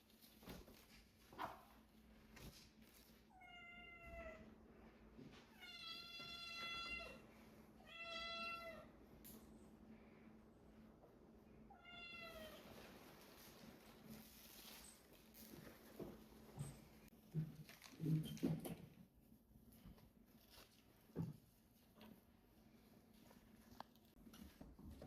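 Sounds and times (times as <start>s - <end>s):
cat meowing: 7.8s - 8.9s, 11.7s - 12.6s.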